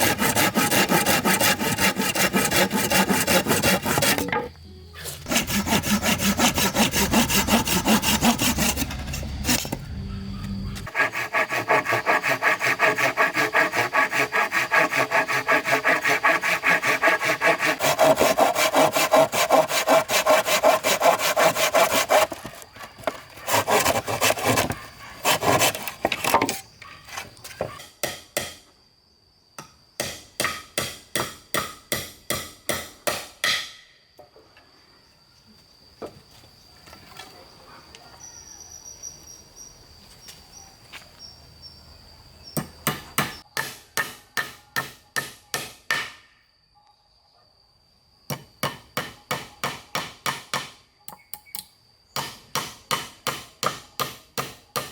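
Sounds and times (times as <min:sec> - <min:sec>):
saw cutting wood: 0:00.0 - 0:09.9, 0:10.6 - 0:26.6
hammer striking wood: 0:42.6 - 0:46.2, 0:48.3 - 0:50.8, 0:52.2 - 0:54.9.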